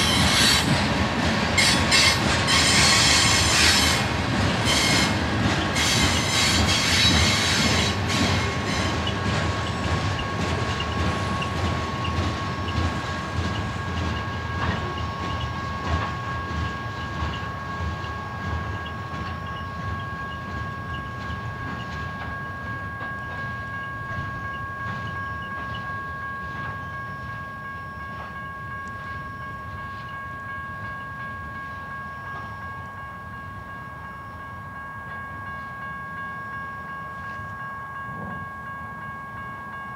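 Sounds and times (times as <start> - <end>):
freight train wheels clicking: 0.0 - 33.8
train rumble: 0.0 - 39.9.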